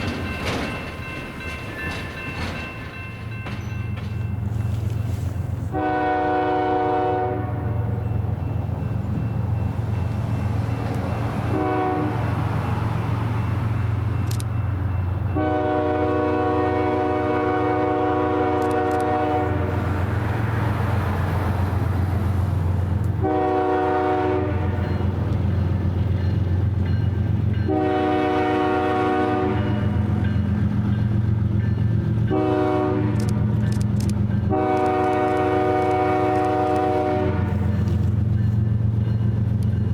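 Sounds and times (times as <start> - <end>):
train engines rumbling: 0.0 - 39.9
locomotive horn blasts: 5.7 - 8.1, 11.4 - 12.5, 15.3 - 19.9, 23.1 - 25.1, 27.6 - 30.1, 32.3 - 33.5, 34.4 - 37.8.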